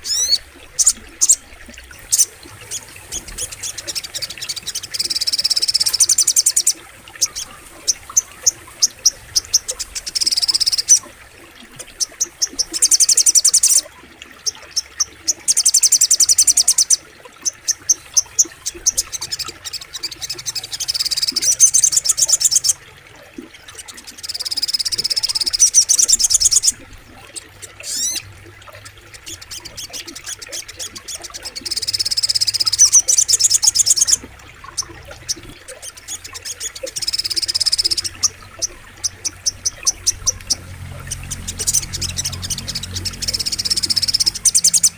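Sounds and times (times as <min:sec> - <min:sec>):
bird high fast trills: 0:27.8 - 0:28.2.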